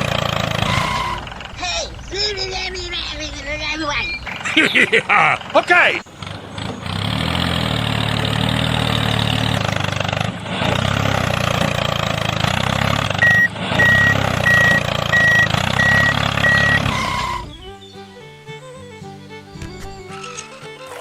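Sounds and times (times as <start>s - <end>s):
vehicle engine running: 0.0s - 18.5s
reversing alarm beeping: 13.2s - 17.4s.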